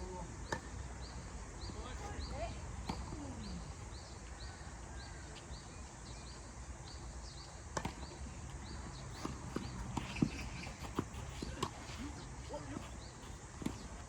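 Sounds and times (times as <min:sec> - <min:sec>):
tennis balls struck by rackets: 0:00.4 - 0:00.9, 0:02.8 - 0:03.2, 0:07.6 - 0:14.0
tennis balls bouncing on court: 0:02.8 - 0:03.2, 0:07.7 - 0:14.0.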